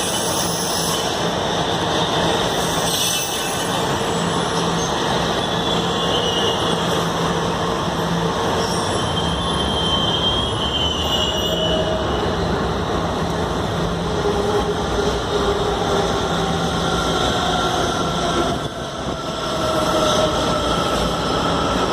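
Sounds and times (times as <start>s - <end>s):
train wheels rumbling on rail: 0.0s - 21.9s
high wheel squeals: 2.1s - 7.0s, 8.5s - 12.6s.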